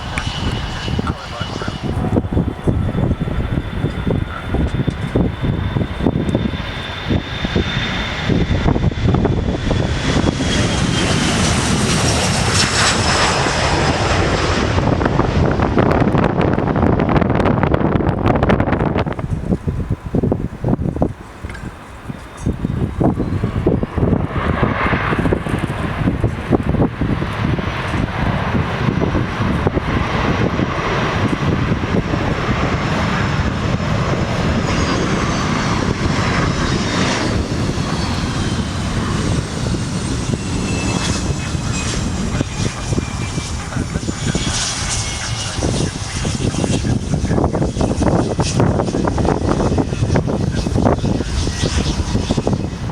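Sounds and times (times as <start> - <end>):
jet airliner passing: 0.0 - 52.9
low rumble: 0.0 - 52.9
wind buffeting microphone: 0.0 - 52.9.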